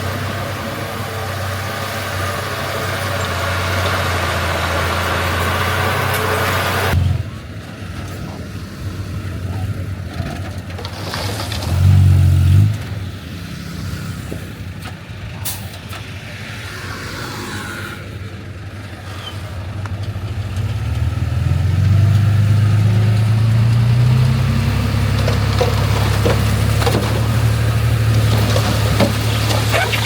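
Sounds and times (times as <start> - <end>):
heavy diesel engine droning: 0.0 - 8.4.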